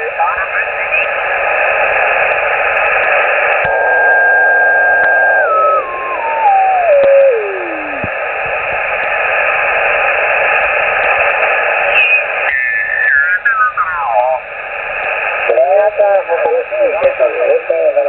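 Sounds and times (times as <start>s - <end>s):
radio static hiss: 0.0s - 18.0s
radio beat whistle: 3.6s - 8.6s, 11.8s - 13.8s.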